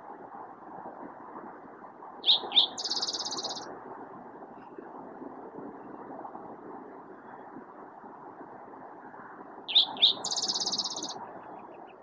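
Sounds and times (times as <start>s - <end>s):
low background noise: 0.0s - 12.0s
bird singing sharp notes and trill: 2.2s - 3.7s, 9.7s - 11.2s.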